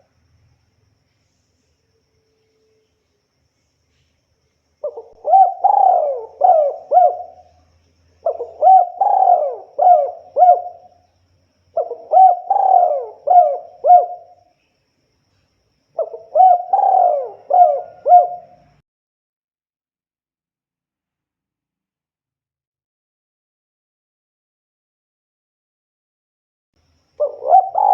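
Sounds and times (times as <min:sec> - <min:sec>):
dove cooing: 0:04.8 - 0:07.6, 0:08.2 - 0:11.0, 0:11.7 - 0:14.4, 0:16.0 - 0:18.8, 0:27.2 - 0:27.9.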